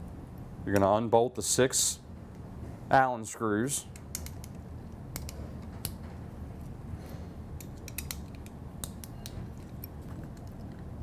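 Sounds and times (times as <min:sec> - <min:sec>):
allen key turning screws: 0:07.6 - 0:10.6.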